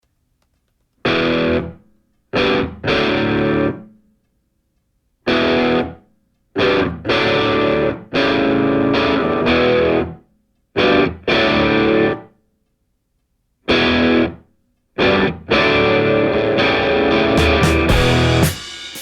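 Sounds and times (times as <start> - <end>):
distorted electric guitar chords: 1.1 - 1.8, 2.4 - 3.8, 5.3 - 6.0, 6.6 - 10.2, 10.8 - 12.2, 13.7 - 14.4, 15.0 - 19.0.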